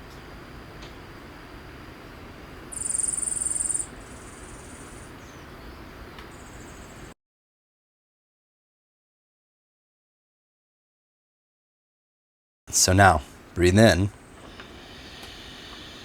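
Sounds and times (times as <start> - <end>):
steady low hiss: 0.0 - 7.1, 12.7 - 16.0
insect trilling: 2.7 - 5.1.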